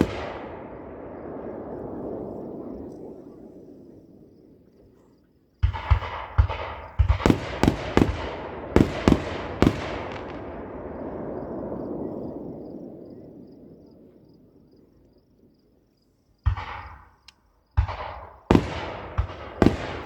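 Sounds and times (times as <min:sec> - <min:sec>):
firework shells bursting with bangs: 0:00.0 - 0:03.1, 0:05.6 - 0:11.9, 0:16.5 - 0:20.0.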